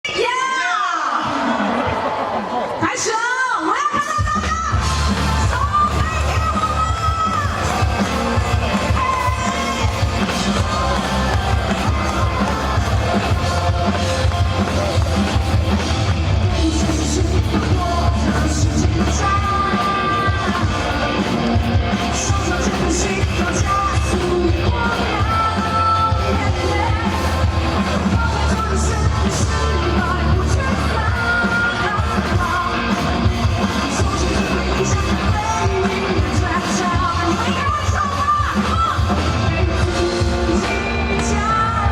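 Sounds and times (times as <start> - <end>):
person singing and shouting: 2.8 - 41.9
live rock band playing: 4.0 - 41.9.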